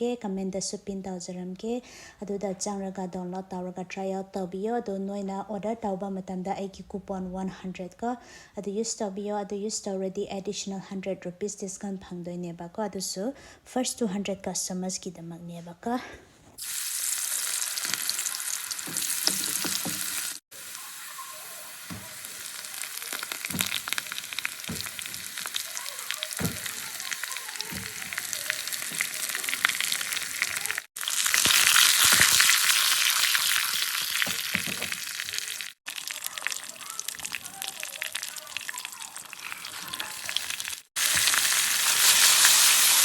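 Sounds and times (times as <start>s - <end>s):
food sizzling in hot oil: 16.6s - 43.0s.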